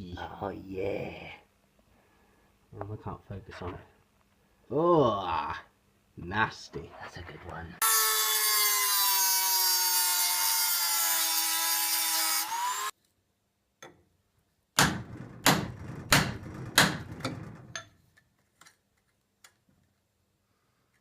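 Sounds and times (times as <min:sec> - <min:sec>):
heavy knocks with rattle: 0:14.8 - 0:17.9.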